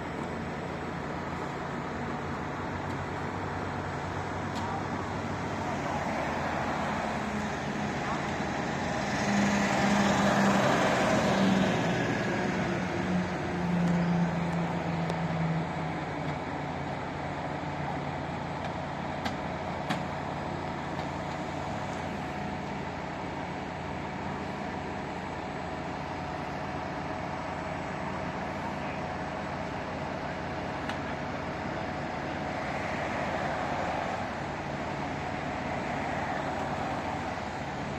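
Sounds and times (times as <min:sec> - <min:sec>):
traffic hum: 0:00.0 - 0:37.9
vehicle engine drone: 0:00.0 - 0:37.9
vehicle rushing past: 0:05.7 - 0:14.9.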